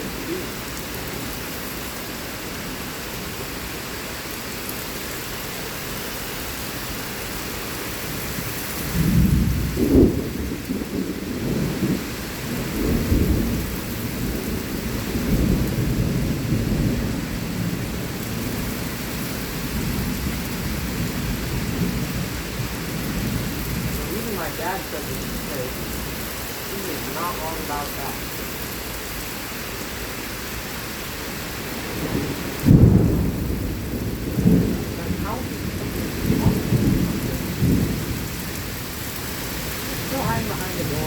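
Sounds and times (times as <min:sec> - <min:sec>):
heavy rain falling: 0:00.0 - 0:41.0
rolling thunder: 0:08.4 - 0:28.4, 0:31.6 - 0:41.0.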